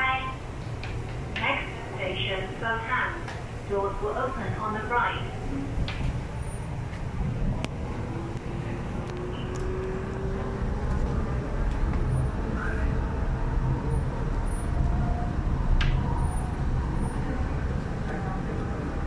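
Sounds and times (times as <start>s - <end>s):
train cabin rumble: 0.0s - 19.0s.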